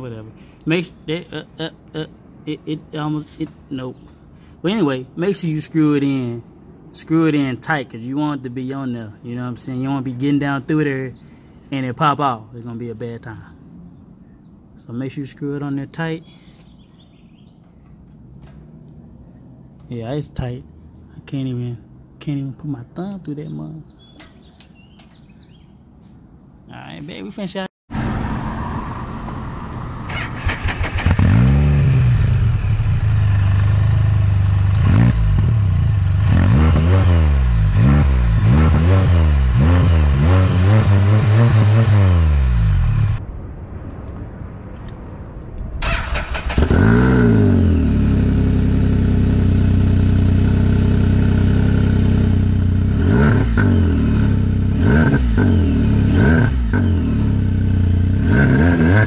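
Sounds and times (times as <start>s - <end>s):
motorcycle engine revving: 27.9s - 43.2s, 45.8s - 59.0s.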